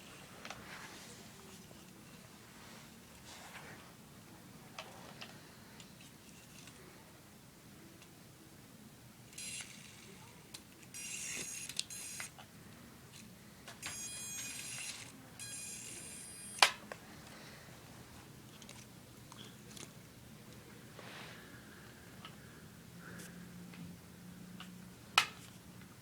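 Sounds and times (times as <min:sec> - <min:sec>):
toy helicopter motor whirring: 0:09.4 - 0:10.3, 0:10.9 - 0:12.4, 0:13.8 - 0:16.7.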